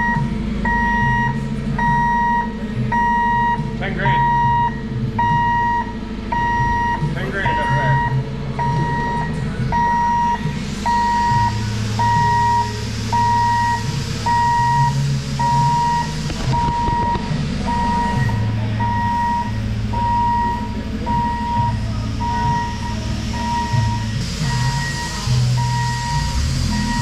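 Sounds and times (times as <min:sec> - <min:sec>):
engine rumble: 0:00.0 - 0:27.0
reversing alarm beeping: 0:00.0 - 0:27.0.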